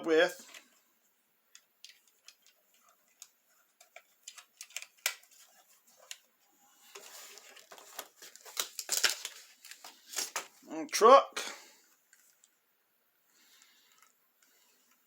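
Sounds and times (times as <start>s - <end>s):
plastic toy parts clicking: 1.6s - 5.3s
packaging rustling: 1.6s - 10.7s, 13.4s - 15.0s.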